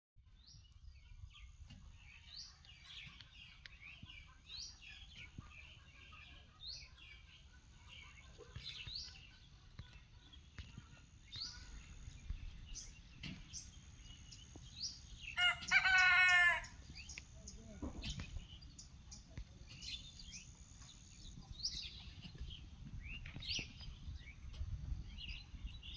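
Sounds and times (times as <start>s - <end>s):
birds chirping and twittering: 0.4s - 25.9s
bird short rising call: 15.4s - 16.7s.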